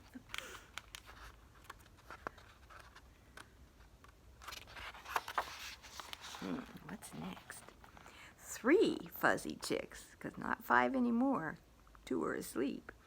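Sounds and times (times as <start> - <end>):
book pages turning clicks: 0.2 - 6.5
paper rustling: 0.2 - 8.2.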